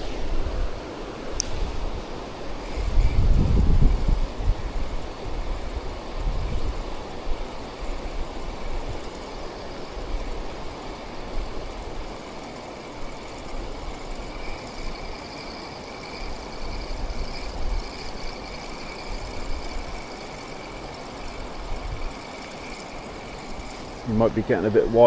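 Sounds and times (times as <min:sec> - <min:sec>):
wind buffeting microphone: 0:00.0 - 0:25.0
water pouring over a weir: 0:05.0 - 0:24.2.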